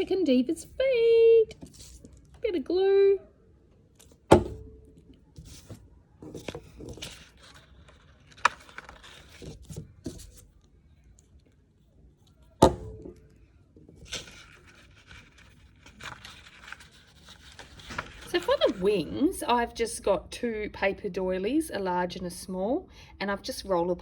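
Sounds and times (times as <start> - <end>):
paper rustling and scraping: 1.5 - 2.3, 5.3 - 10.6, 13.9 - 19.2.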